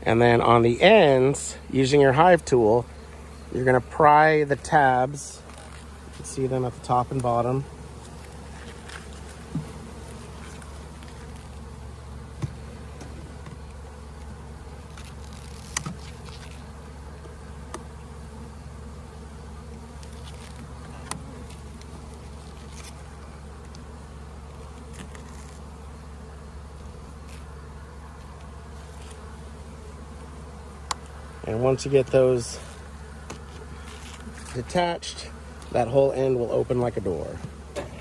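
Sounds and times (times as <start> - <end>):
honeybees buzzing: 0.0 - 38.0
hive tool clicking on plastic: 12.4 - 16.6, 30.8 - 31.2.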